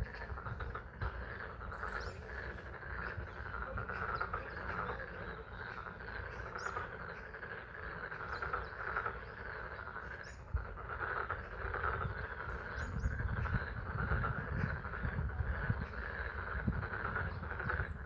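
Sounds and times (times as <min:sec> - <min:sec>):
frogs calling: 0:00.0 - 0:18.0
high bird chirps: 0:01.6 - 0:07.4.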